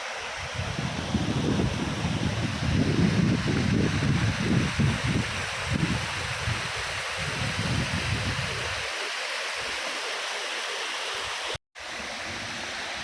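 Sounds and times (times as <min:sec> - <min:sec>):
running water rushing: 0:00.0 - 0:13.0
wind buffeting microphone: 0:00.4 - 0:08.8.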